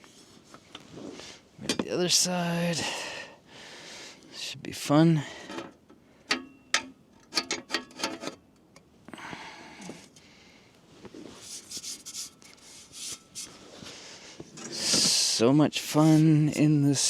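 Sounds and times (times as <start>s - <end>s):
metal plates clinking: 6.3s - 8.4s.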